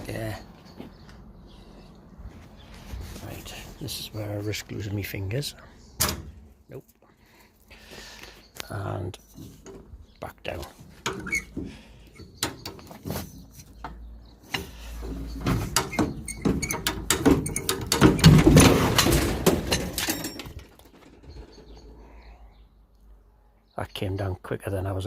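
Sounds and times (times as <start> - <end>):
loud metal clatter: 15.3 - 21.8.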